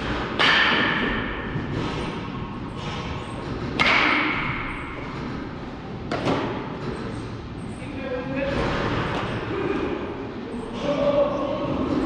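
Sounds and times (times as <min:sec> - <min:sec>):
metal bat hitting baseball: 0:00.4 - 0:01.4, 0:03.8 - 0:04.7.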